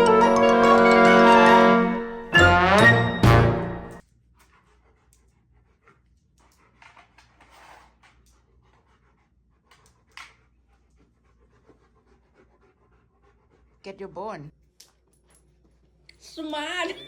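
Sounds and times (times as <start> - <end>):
dog panting: 4.2 - 14.5.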